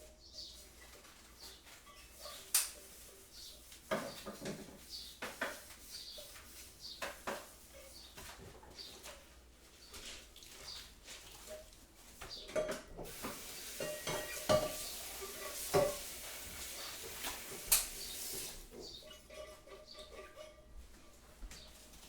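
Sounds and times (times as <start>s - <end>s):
cutlery clinking against crockery: 1.4s - 2.9s, 11.4s - 16.2s, 16.8s - 21.2s
steady hiss: 13.0s - 18.7s.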